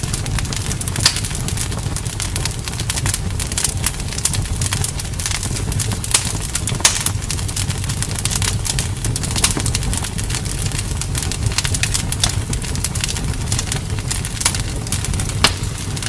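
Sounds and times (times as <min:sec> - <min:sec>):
low rumble: 0:00.0 - 0:16.0
wood campfire crackling: 0:00.0 - 0:16.0.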